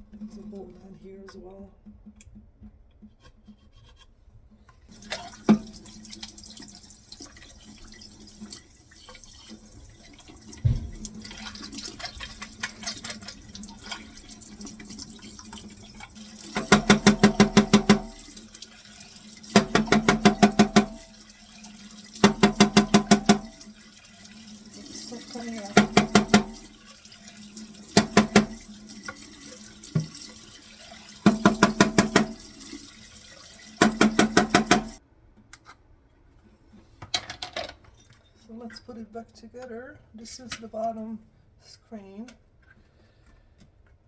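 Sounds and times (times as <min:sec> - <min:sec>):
kitchen tap running into sink: 0:04.9 - 0:35.0
knocks: 0:16.6 - 0:18.2, 0:19.6 - 0:21.0, 0:22.2 - 0:23.6, 0:25.8 - 0:26.7, 0:28.0 - 0:28.6, 0:31.3 - 0:32.4, 0:33.8 - 0:35.0.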